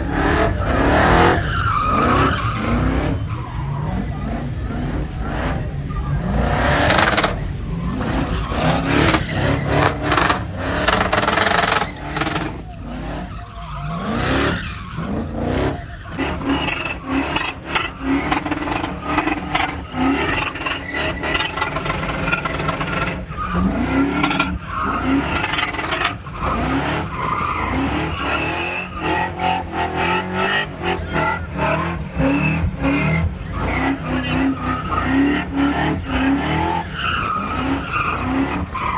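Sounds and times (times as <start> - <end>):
truck engines revving: 0.0 - 38.9
tyre squeal and skid: 0.0 - 38.9.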